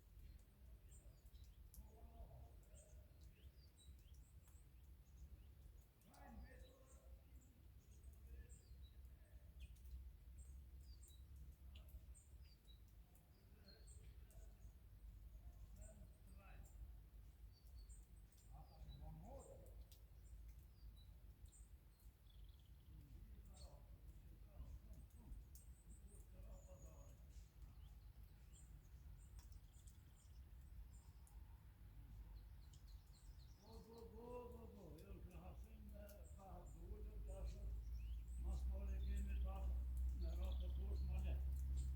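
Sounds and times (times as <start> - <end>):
small birds chirping: 0.0 - 41.9
low outdoor rumble: 33.1 - 41.9.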